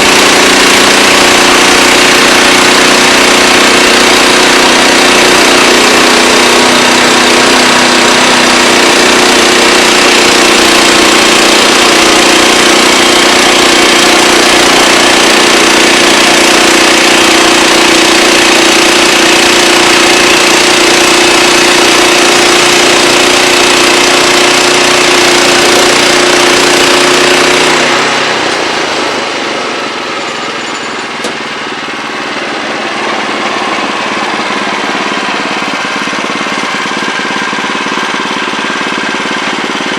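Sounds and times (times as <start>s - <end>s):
band sawmill cutting log: 0.0s - 39.9s.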